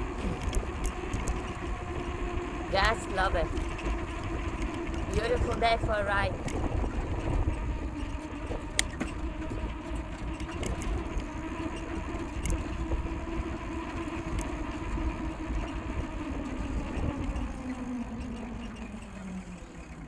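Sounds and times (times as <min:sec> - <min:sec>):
steady hum: 0:00.0 - 0:08.1
wind rumbling on microphone: 0:00.0 - 0:09.8.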